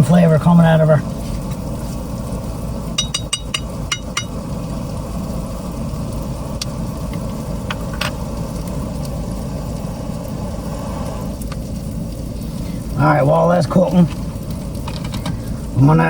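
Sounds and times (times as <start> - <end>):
low engine-like drone: 0.0 - 16.0
utensil clinking on frying pan: 3.0 - 4.4.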